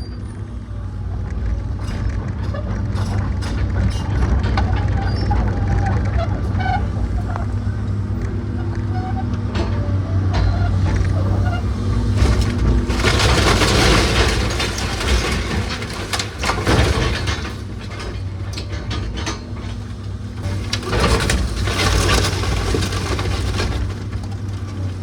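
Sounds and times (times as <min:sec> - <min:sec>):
engine running: 0:00.4 - 0:25.0
timber cracking and crunching: 0:11.0 - 0:25.0.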